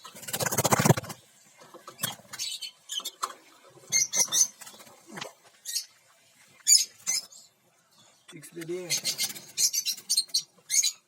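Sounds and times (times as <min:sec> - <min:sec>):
lovebirds chirping: 0:01.9 - 0:04.9, 0:05.6 - 0:11.0.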